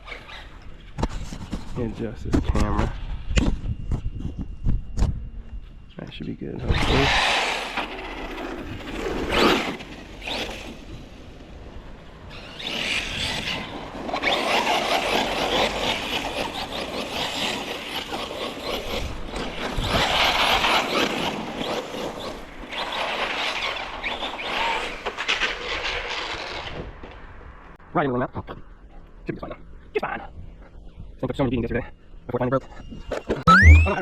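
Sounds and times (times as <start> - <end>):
rc car driving over rough ground: 6.6 - 27.3.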